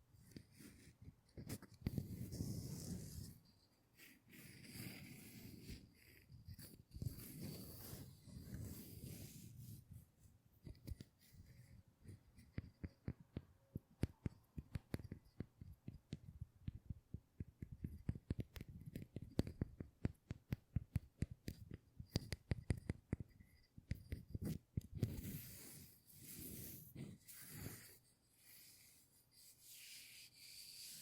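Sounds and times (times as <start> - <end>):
rubbing brushing sound: 0.3 - 13.1, 22.7 - 31.0
sharp taps and clicks on object: 12.4 - 25.2.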